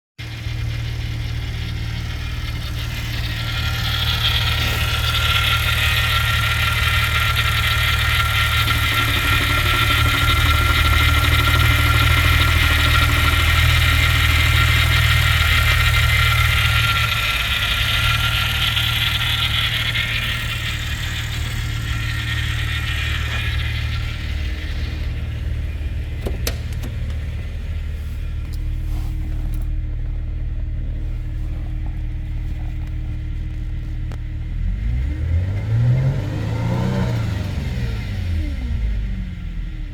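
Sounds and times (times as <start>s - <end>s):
car engine running: 0.2s - 39.9s
sharp clicks: 26.1s - 27.3s.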